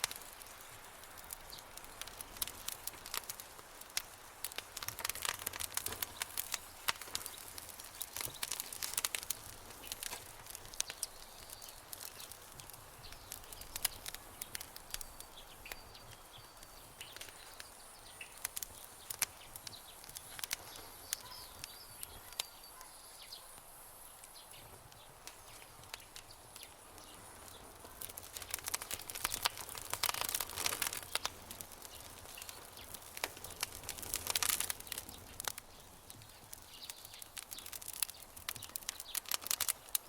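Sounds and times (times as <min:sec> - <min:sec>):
campfire crackling and popping: 0:00.0 - 0:40.0
faint high chirps: 0:20.8 - 0:23.6.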